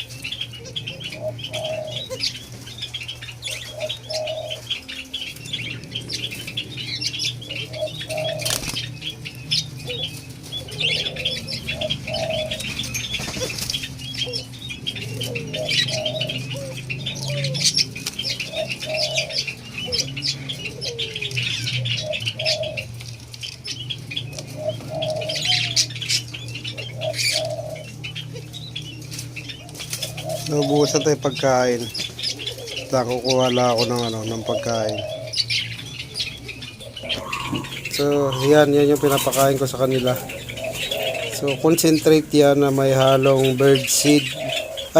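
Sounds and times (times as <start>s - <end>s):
dove call notes: 0.0s - 44.9s
steady low hum: 0.0s - 44.9s
doves flapping wings: 8.2s - 9.1s, 12.1s - 14.1s.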